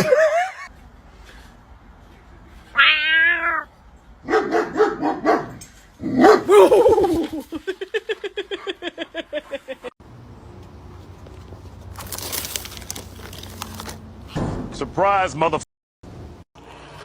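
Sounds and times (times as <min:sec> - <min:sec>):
dog barking and yipping: 0:04.2 - 0:07.2.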